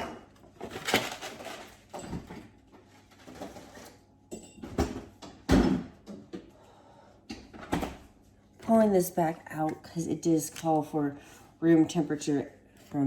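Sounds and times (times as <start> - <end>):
kitchen items clattering: 0.0 - 6.4.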